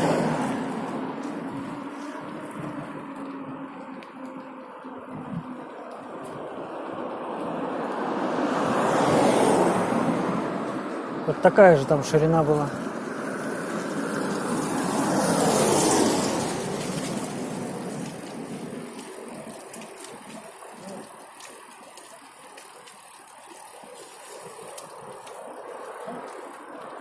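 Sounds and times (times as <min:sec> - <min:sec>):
vehicle passing by: 0:00.0 - 0:03.6, 0:06.7 - 0:19.6
street traffic: 0:00.0 - 0:27.0.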